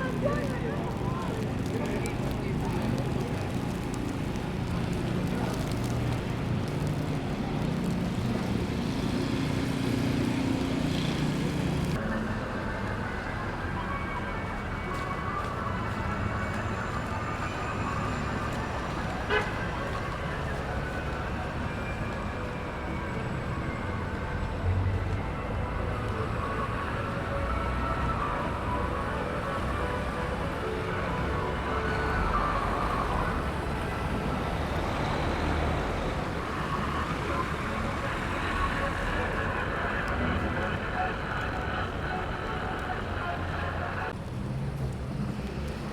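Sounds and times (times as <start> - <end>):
city traffic drone: 0.0 - 45.9
rumble of passing vehicles: 0.0 - 45.9.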